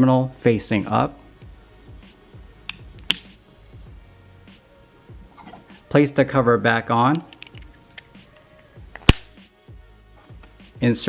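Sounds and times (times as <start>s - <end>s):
quiet background music: 0.0s - 11.0s
battery clicking into holder: 2.7s - 3.3s, 7.0s - 8.2s, 9.0s - 9.3s.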